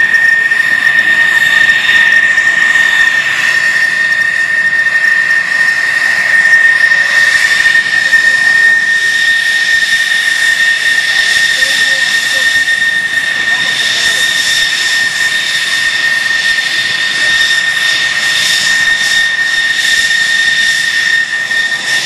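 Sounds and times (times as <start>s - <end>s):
jet engine whine: 0.0s - 22.0s.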